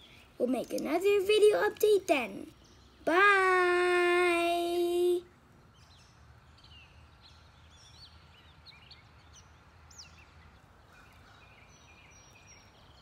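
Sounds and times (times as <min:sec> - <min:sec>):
small birds chirping and whistling: 0:05.7 - 0:13.0.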